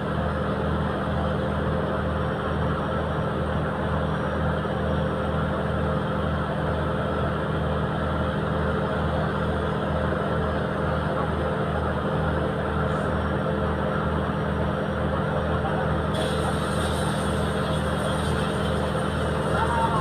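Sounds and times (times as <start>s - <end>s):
boat engine throbbing: 15.6s - 20.0s
hiss: 16.1s - 20.0s.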